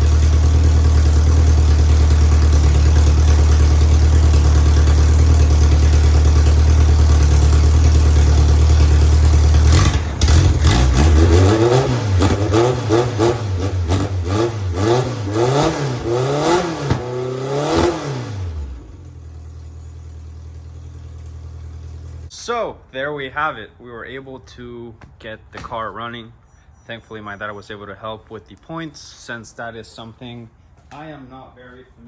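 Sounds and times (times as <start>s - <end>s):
race car engine revving: 0.0s - 19.2s.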